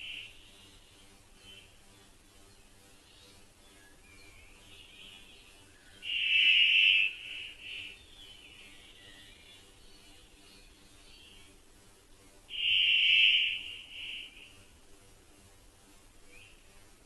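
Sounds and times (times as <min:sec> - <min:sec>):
loud bird call: 0:00.0 - 0:00.3, 0:06.0 - 0:08.0, 0:12.5 - 0:14.6
faint high bird chirps: 0:00.0 - 0:00.7, 0:03.2 - 0:11.4, 0:12.5 - 0:14.6.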